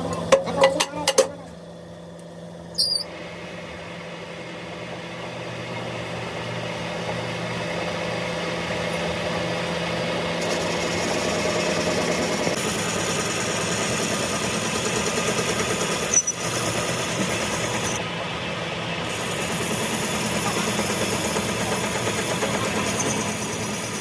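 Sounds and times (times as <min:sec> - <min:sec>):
engine idling: 0:06.9 - 0:24.0.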